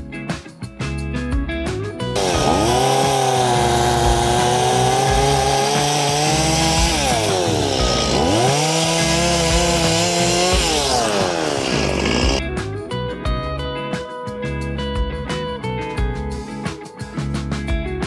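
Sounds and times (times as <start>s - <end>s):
strummed guitar music: 0.0s - 18.0s
chainsaw revving: 2.2s - 12.4s.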